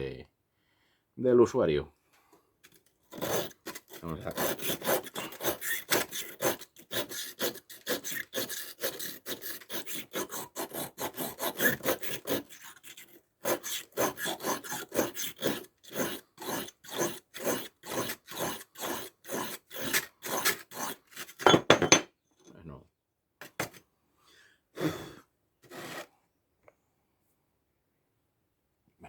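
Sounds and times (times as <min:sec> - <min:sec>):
knife scraping on sharpening stone: 0:03.1 - 0:22.0.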